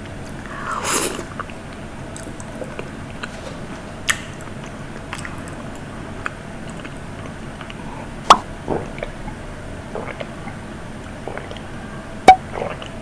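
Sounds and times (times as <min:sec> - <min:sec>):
chewing: 0:04.1 - 0:13.0.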